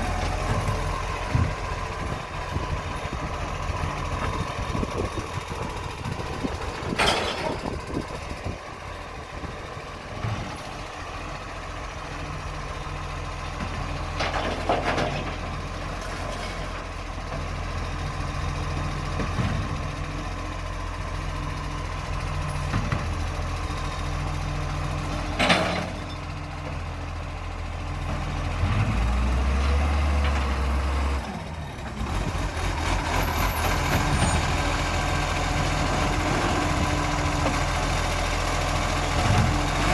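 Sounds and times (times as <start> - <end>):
diesel truck engine idling: 0.0 - 14.2.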